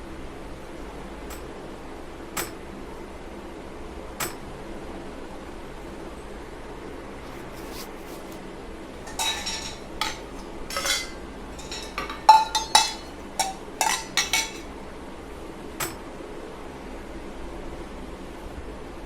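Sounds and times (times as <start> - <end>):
dishes and utensils clinking: 9.0 - 14.7.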